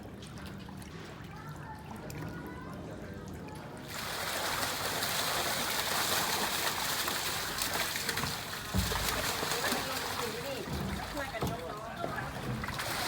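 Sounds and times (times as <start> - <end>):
water gushing and splashing: 3.8 - 13.0.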